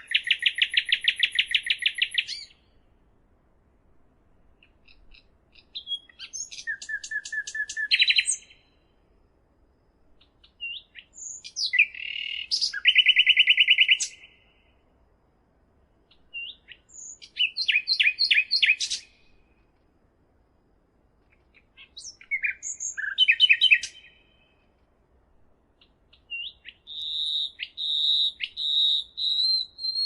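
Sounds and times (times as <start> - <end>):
songbird singing with trills: 0.0 - 2.8, 4.6 - 9.0, 10.2 - 14.8, 16.1 - 19.5, 21.5 - 24.7, 25.8 - 30.0.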